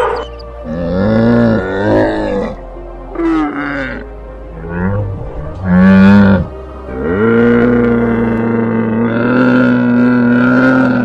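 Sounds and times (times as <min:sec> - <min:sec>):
cow lowing: 0:00.0 - 0:11.0.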